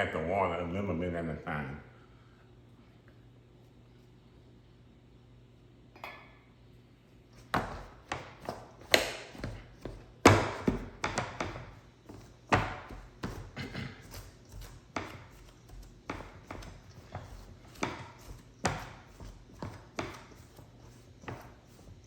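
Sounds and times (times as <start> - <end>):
utensil knocking against mixing bowl: 7.5 - 21.5.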